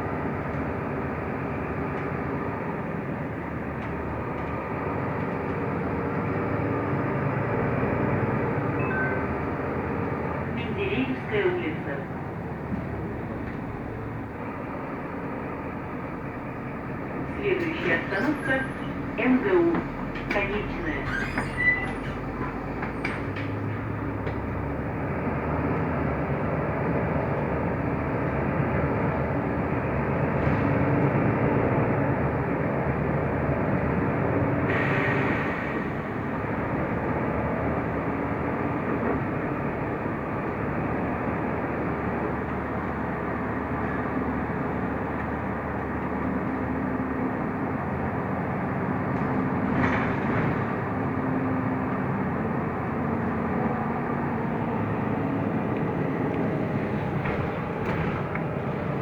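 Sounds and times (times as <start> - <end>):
bus engine and road noise: 0.0 - 59.0.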